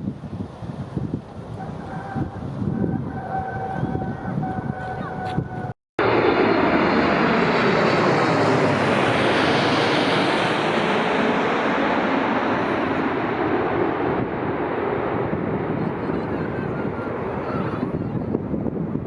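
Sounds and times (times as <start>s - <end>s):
wind buffeting microphone: 0.0s - 5.7s, 12.4s - 19.0s
jet airliner engines roaring: 0.5s - 19.0s.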